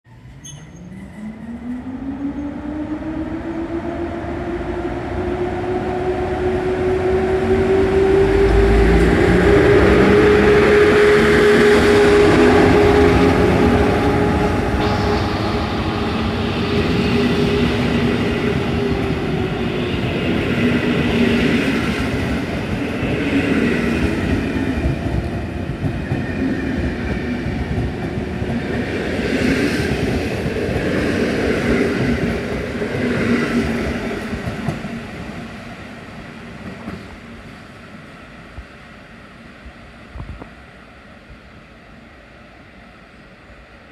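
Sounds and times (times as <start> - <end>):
electric locomotive motors whining: 0.1 - 35.4
train wheels rumbling and clattering: 4.8 - 35.7, 36.4 - 37.6.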